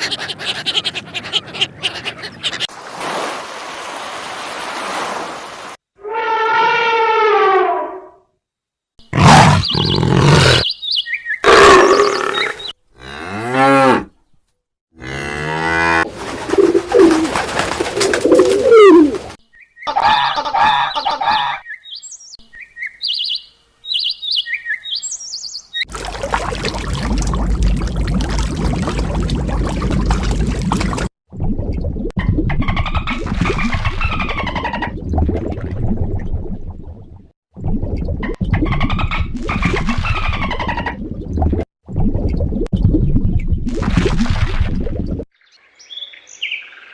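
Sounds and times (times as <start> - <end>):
animal calls with gliding pitch: 6.0 - 8.2, 18.3 - 19.3.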